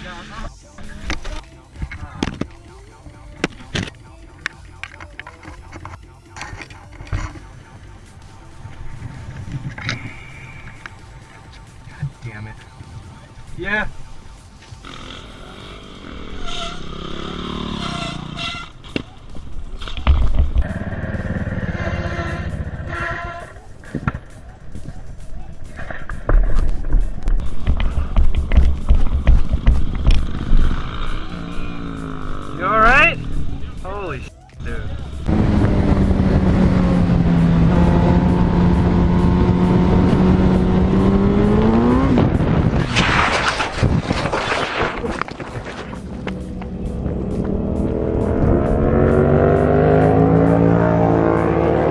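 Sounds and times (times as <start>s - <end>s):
motorcycle engine running: 14.7s - 26.4s, 27.0s - 33.9s, 34.6s - 42.8s
harsh rasping noise: 19.7s - 32.6s.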